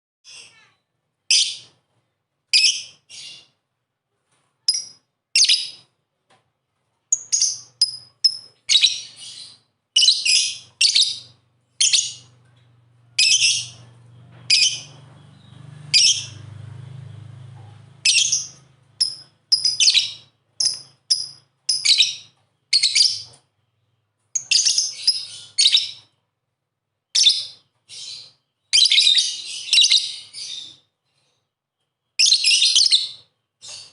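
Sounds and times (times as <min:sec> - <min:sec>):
lovebird chirping: 0:04.7 - 0:05.9, 0:07.1 - 0:17.2, 0:18.0 - 0:26.2, 0:27.1 - 0:30.9, 0:32.1 - 0:33.9
faint low hum: 0:10.6 - 0:20.0.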